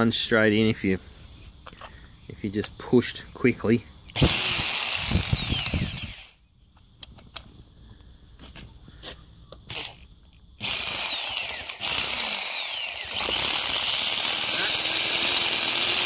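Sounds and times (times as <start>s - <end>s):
power saw cutting concrete block: 10.6s - 16.0s.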